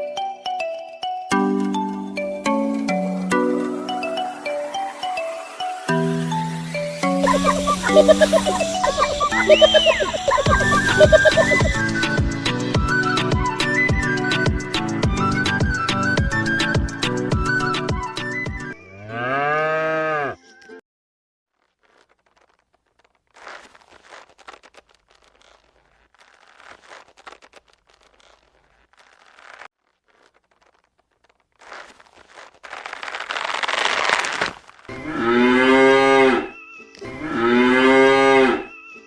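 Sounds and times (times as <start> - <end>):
cow mooing: 18.9 - 20.4, 35.0 - 36.5, 37.1 - 38.7
faint crackling: 21.5 - 34.9.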